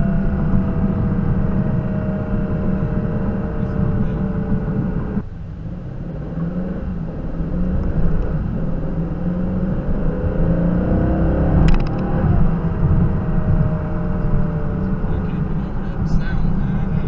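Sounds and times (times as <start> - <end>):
car engine accelerating: 0.0 - 17.0
sharp click: 11.6 - 12.1.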